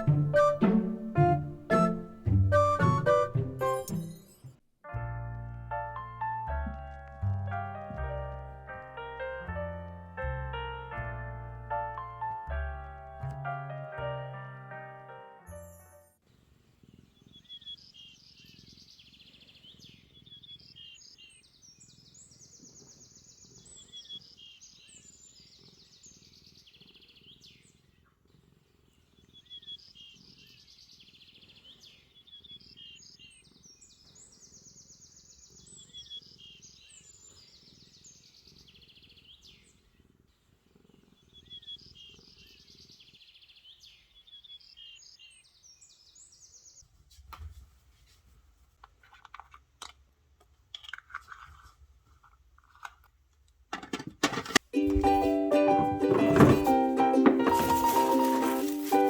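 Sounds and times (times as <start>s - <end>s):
bird song chirping and trilling: 17.2s - 27.7s, 29.3s - 39.8s, 41.2s - 46.8s.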